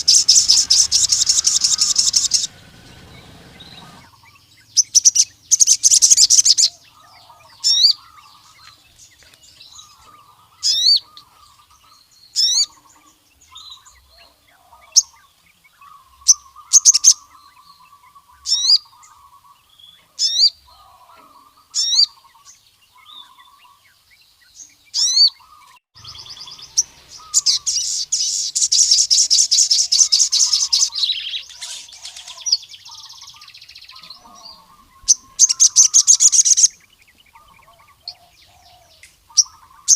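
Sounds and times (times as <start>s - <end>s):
rapid chattering trill: 0.0s - 4.1s
soft low twittering: 0.0s - 4.2s
sunbird high chirps: 0.0s - 39.9s.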